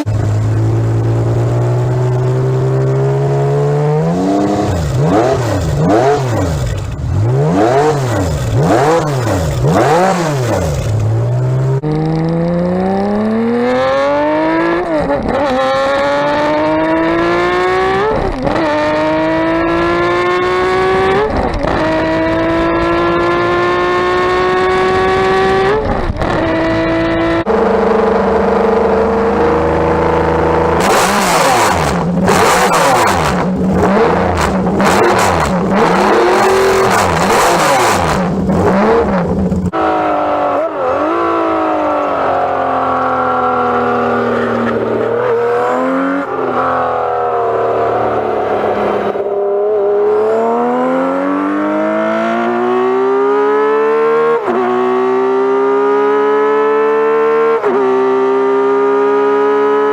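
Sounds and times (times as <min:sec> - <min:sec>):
motorcycle engine revving: 0:00.0 - 0:59.9
wind noise: 0:24.2 - 0:27.5.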